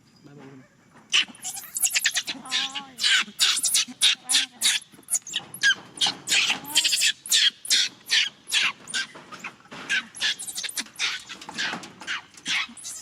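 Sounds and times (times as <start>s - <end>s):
baby monkey screeching: 1.1s - 13.0s.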